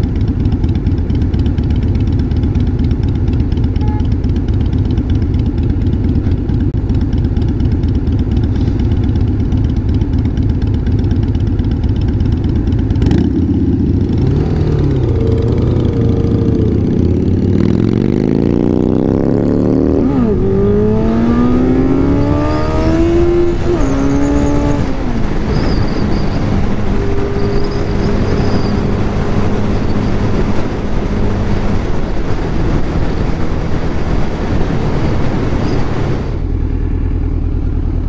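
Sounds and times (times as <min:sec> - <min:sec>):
motorcycle engine revving: 0:00.0 - 0:38.0
wind rushing: 0:14.3 - 0:36.5.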